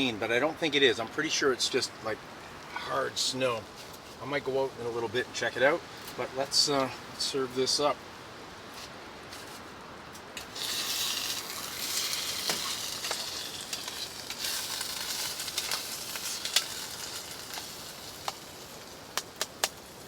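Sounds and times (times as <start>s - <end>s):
meat sizzling in a pan: 10.4s - 20.0s.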